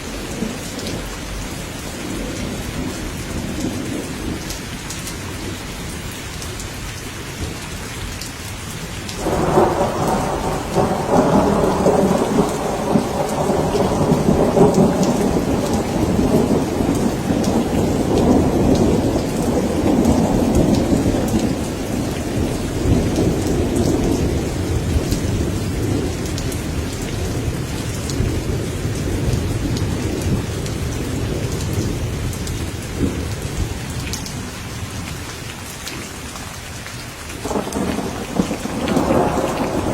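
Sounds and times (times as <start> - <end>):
heavy rain: 0.0 - 39.9
rolling thunder: 9.1 - 35.0, 37.4 - 39.9.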